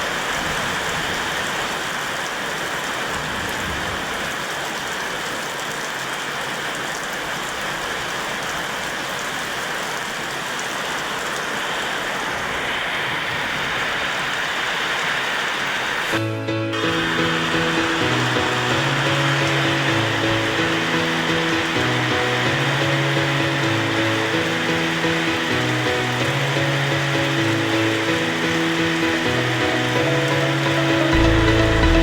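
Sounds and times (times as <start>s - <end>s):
steady rain falling: 0.0s - 32.0s
music: 16.2s - 32.0s.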